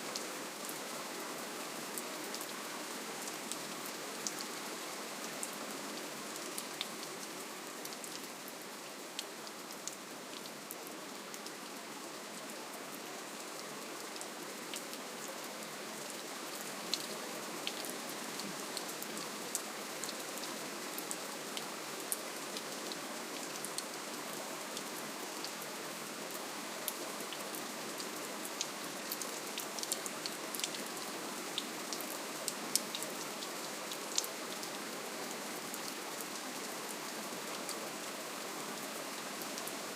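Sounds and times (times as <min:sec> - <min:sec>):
raindrops ticking on a surface: 0:28.5 - 0:34.8.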